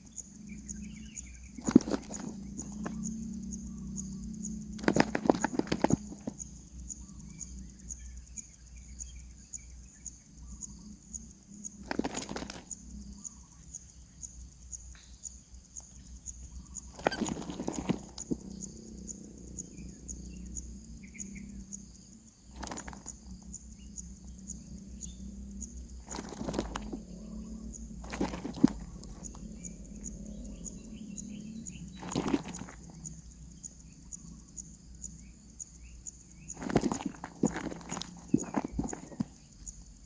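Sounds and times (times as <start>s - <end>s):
nestlings chirping: 0.0s - 14.3s, 15.8s - 40.0s
steady low hum: 0.0s - 40.0s.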